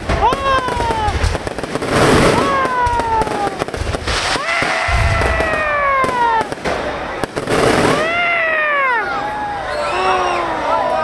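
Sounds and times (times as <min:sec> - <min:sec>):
firework boom: 0:00.0 - 0:08.1
firework crackling pops: 0:00.0 - 0:08.4
firework whistles sliding down: 0:04.0 - 0:05.7.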